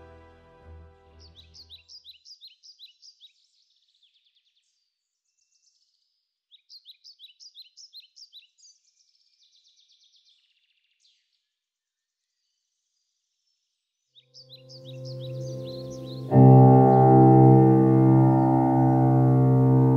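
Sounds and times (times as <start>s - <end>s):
songbird chirps and trills: 14.4s - 19.9s.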